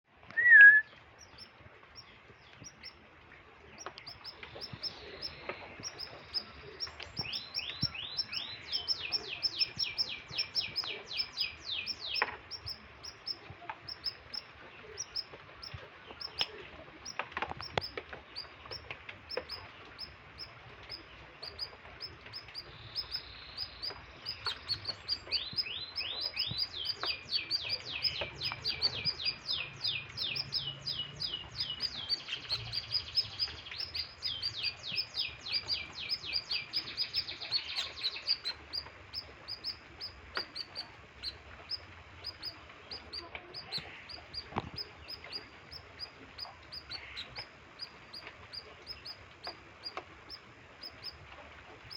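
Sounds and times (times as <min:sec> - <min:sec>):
canary singing chirps and trills: 0:00.3 - 0:51.9.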